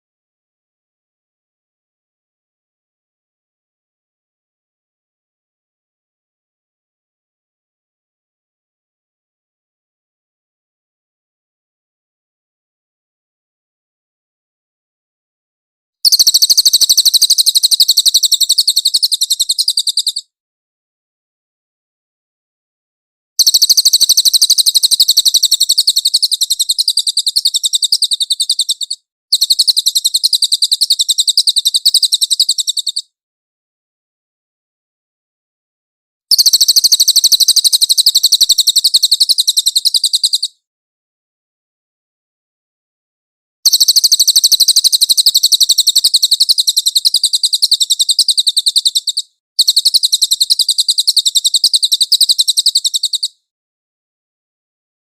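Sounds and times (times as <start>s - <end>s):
songbird chattering trill: 16.1s - 20.2s, 23.4s - 33.1s, 36.3s - 40.5s, 43.7s - 53.3s.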